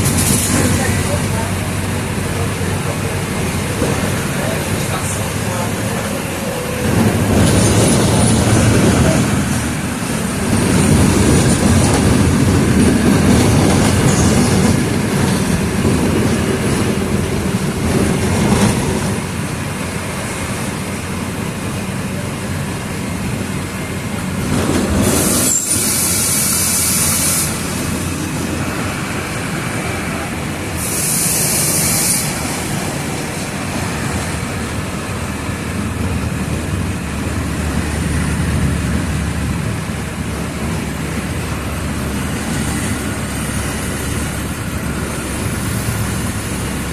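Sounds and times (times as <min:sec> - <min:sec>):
bus engine running: 0:00.0 - 0:25.2, 0:34.4 - 0:46.9
road noise: 0:00.0 - 0:46.9
short bursts of hiss: 0:30.8 - 0:32.4.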